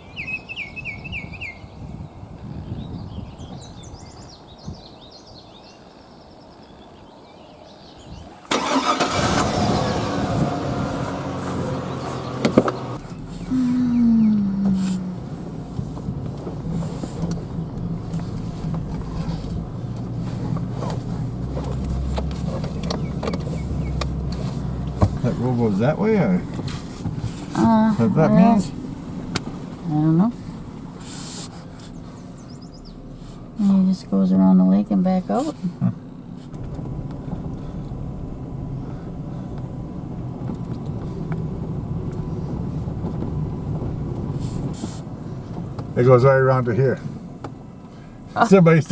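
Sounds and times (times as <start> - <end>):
truck engine hum: 0.0 - 6.6, 7.8 - 48.9
light knocks and rattles: 15.6 - 28.0
short hiss: 31.0 - 31.9.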